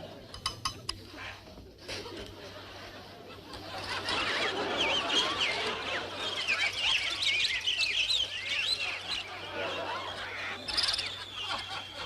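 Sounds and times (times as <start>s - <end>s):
birds chirping and twittering: 3.6s - 12.0s
long steady whistled note: 10.6s - 12.0s.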